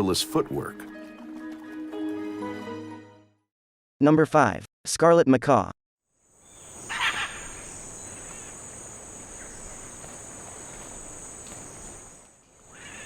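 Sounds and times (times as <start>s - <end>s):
insects buzzing drone: 6.2s - 13.0s.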